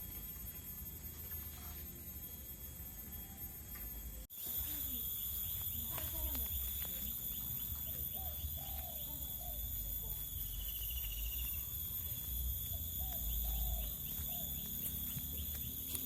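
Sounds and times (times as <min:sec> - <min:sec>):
high-pitched insect-like drone: 0:00.0 - 0:16.0
bird calling: 0:04.4 - 0:16.0.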